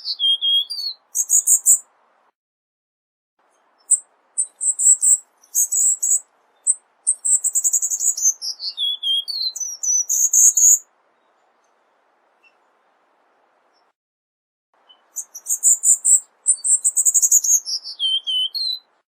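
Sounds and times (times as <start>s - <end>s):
bird chirping and trilling: 0.0s - 1.9s, 3.6s - 11.8s, 14.8s - 19.0s.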